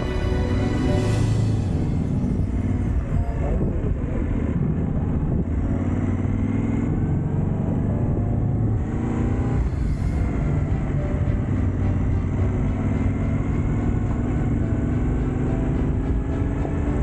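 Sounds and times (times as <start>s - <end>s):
motorcycle engine running: 4.3s - 17.0s.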